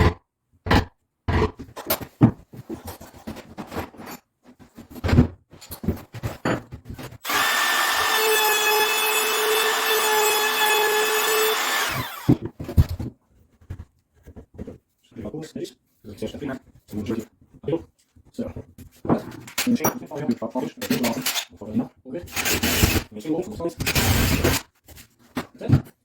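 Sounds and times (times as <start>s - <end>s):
electric drill running: 7.2s - 12.4s, 22.4s - 23.0s.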